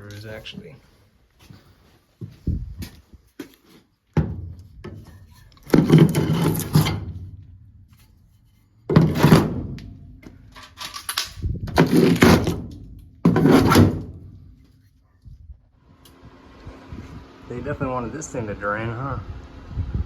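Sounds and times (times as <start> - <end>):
sheet metal clattering bangs: 8.9 - 11.0.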